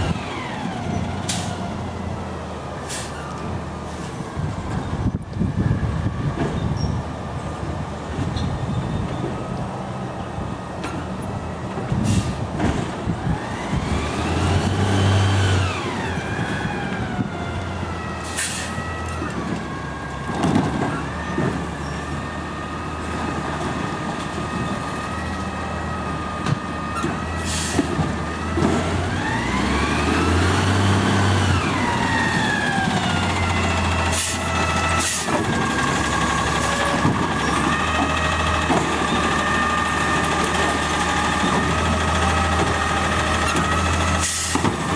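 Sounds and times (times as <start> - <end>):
garbage truck engine revving: 12.2 - 44.9.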